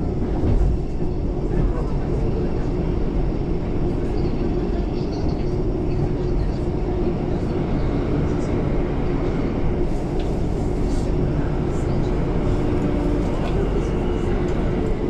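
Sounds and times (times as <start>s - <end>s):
electric train running rumble: 0.0s - 15.0s.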